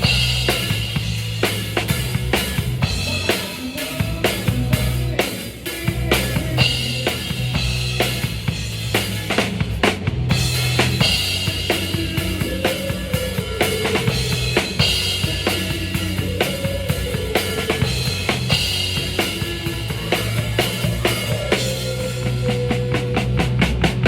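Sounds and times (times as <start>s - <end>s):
bass line: 0.0s - 24.0s
drum kit beat: 0.0s - 24.0s.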